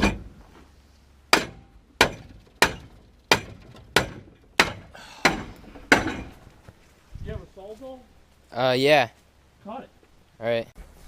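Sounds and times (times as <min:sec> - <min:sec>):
hammer striking metal pipe: 0:01.3 - 0:06.4.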